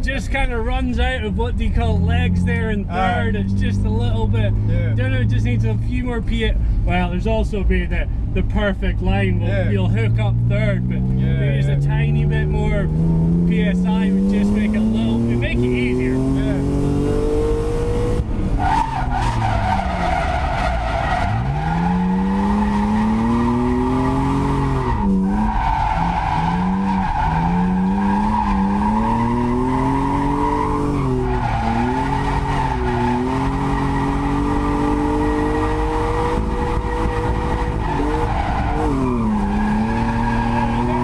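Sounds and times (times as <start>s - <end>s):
car engine revving hard: 9.3s - 41.0s
tyres squealing: 18.6s - 41.0s.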